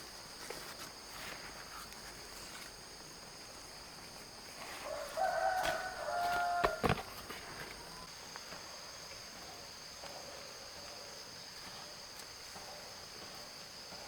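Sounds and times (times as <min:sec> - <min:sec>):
rooster crowing: 0:04.8 - 0:07.1.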